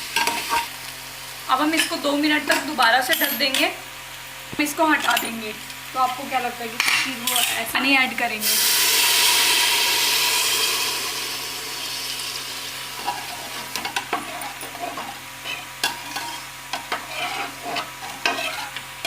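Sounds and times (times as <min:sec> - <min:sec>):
lentils sizzling in hot oil: 0:00.0 - 0:19.0
spoon scraping metal pot: 0:13.0 - 0:18.8.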